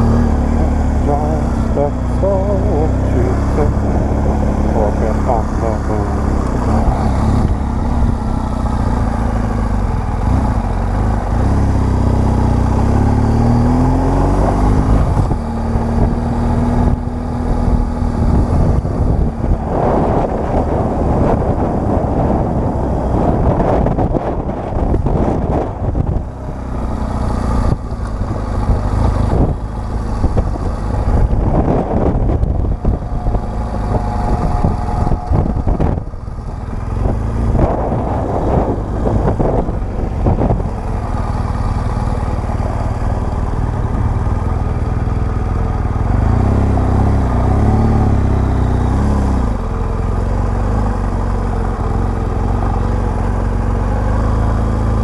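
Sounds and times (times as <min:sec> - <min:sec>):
motorcycle engine running: 0:00.0 - 0:55.0
wind buffeting on microphone: 0:14.7 - 0:26.8, 0:27.5 - 0:49.6.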